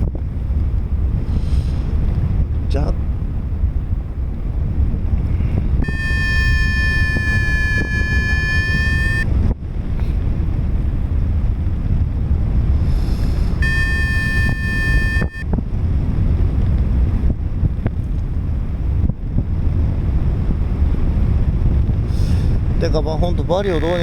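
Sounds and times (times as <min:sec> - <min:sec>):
wind rushing over microphone: 0:00.0 - 0:24.0
electronic variometer tones: 0:05.8 - 0:09.3, 0:13.6 - 0:15.5.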